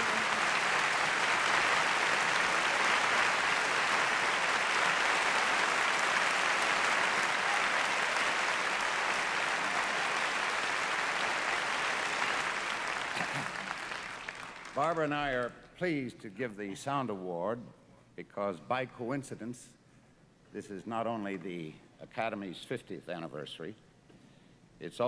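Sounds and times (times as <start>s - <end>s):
theatre audience applauding: 0.0s - 15.1s.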